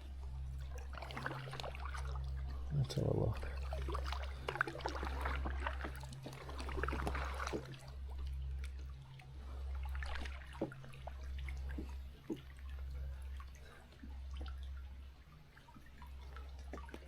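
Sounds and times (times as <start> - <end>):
water dripping off paddle: 0.3 - 17.0
kayak paddle strokes: 3.6 - 7.9.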